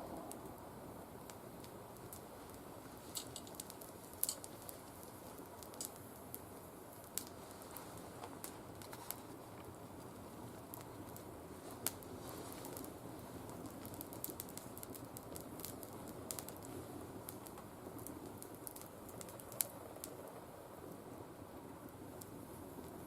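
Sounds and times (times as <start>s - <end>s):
twigs burning with crackles: 0.0s - 23.0s.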